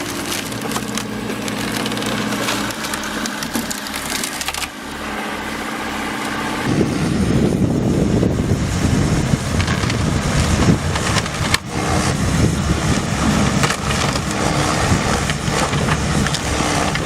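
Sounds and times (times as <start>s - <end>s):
wood knocking and cracking: 0.0s - 4.9s, 12.9s - 17.0s
wood-processing machine engine: 0.0s - 17.0s.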